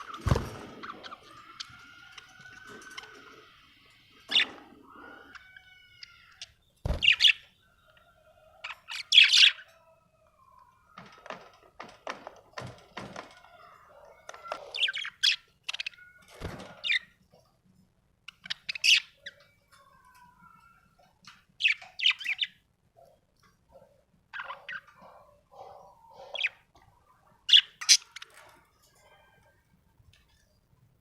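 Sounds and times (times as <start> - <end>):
budgerigar chirping and warbling: 8.6 - 9.7.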